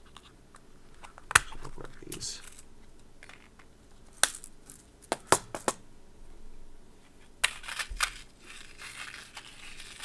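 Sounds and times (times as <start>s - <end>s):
rustling: 7.0s - 10.0s.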